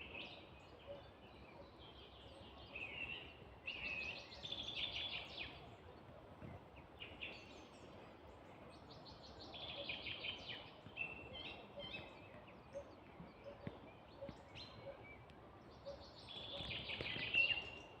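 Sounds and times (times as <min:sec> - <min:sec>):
songbirds chattering song: 0:00.0 - 0:18.0.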